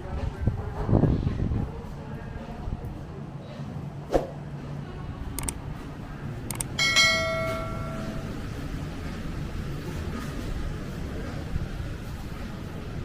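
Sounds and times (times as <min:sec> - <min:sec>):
low rumble of street noise: 0:00.0 - 0:13.0
sharp clicks: 0:05.4 - 0:05.6, 0:06.5 - 0:06.8
bell ringing: 0:06.8 - 0:08.5.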